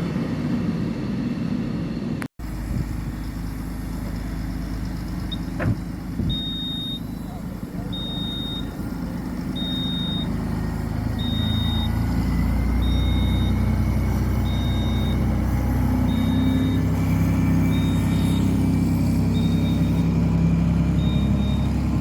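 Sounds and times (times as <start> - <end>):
heavy engine rumbling: 0.0 - 22.0
high electronic beep: 6.2 - 10.4, 11.1 - 12.2, 12.8 - 13.8, 14.4 - 15.3, 16.0 - 16.9, 17.6 - 18.5, 19.3 - 20.1, 21.0 - 21.7.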